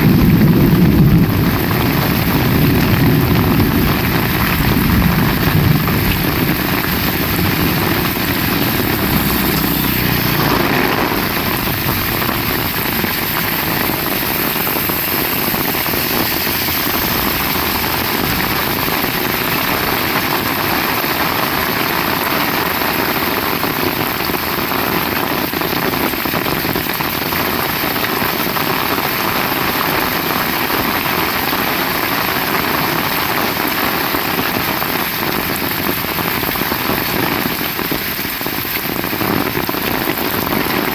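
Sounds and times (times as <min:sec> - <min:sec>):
low rumble: 0:00.0 - 0:21.6
heavy rain falling: 0:00.0 - 0:40.9.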